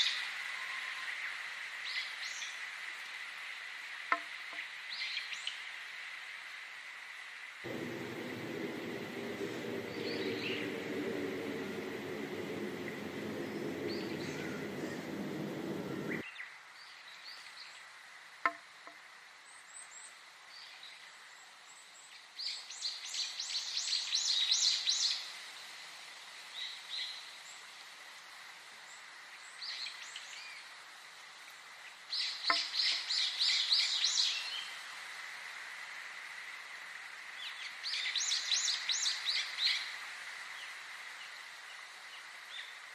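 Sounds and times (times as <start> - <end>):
faint bird chirps: 7.7 - 16.2
low steady rushing noise: 7.7 - 16.2
songbird singing: 7.7 - 16.2.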